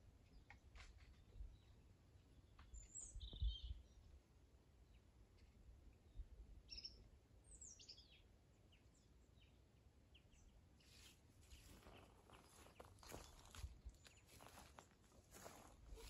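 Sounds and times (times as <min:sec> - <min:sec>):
faint bird chirps: 0:01.1 - 0:04.1.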